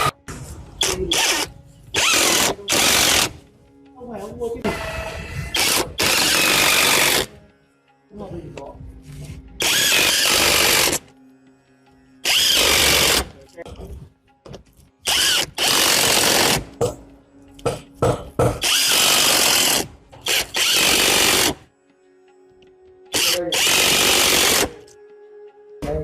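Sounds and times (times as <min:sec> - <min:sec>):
power tool bursts: 0:00.8 - 0:03.4, 0:05.5 - 0:07.3, 0:09.6 - 0:11.0, 0:12.3 - 0:13.3, 0:15.1 - 0:16.7, 0:18.6 - 0:21.6, 0:23.2 - 0:24.8.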